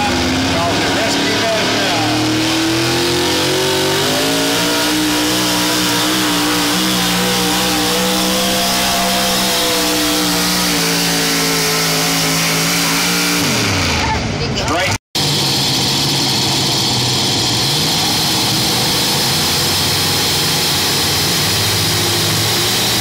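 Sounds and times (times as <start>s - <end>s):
engine running flat out: 0.0s - 23.0s.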